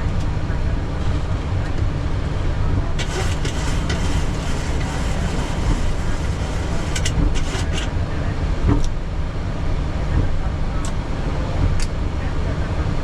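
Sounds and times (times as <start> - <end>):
aircraft engines low rumble: 0.0 - 13.0.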